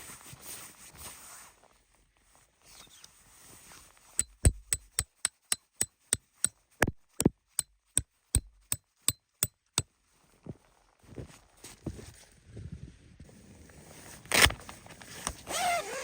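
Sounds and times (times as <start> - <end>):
hammer driving tent peg: 4.2 - 9.4.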